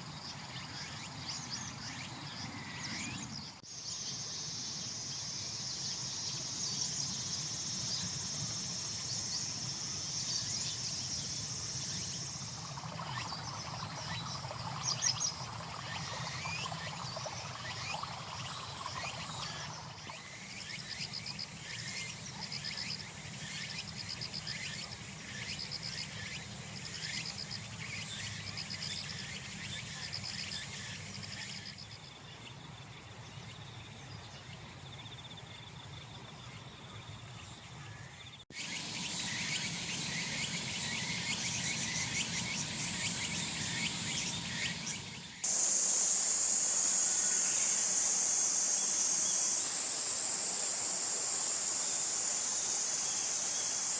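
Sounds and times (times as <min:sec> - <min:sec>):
insects trilling: 0:00.0 - 0:33.8, 0:34.4 - 0:53.9
insect pulsed chirp: 0:00.0 - 0:53.9.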